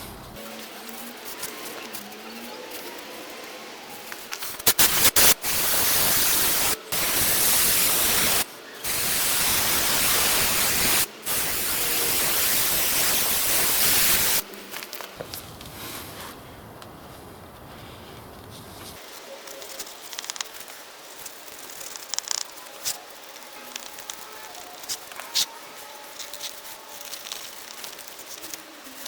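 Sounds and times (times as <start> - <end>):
aerosol can spraying: 4.3 - 14.4.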